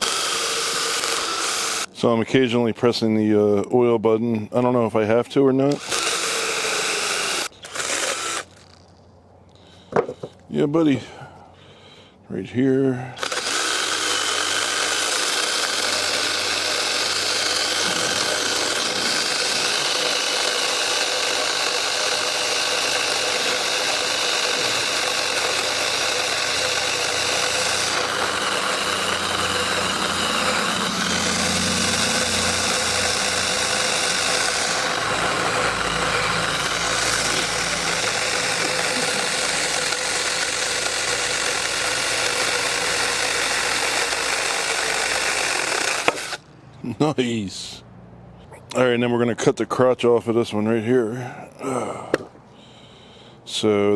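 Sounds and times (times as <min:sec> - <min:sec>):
mini chainsaw cutting log: 0:00.0 - 0:02.0, 0:05.7 - 0:08.9, 0:13.2 - 0:46.5, 0:51.6 - 0:52.3.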